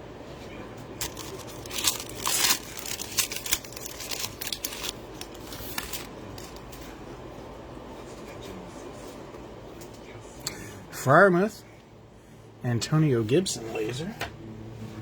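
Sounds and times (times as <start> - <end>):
card pack wrappers crinkling and tearing: 0.9 - 6.8.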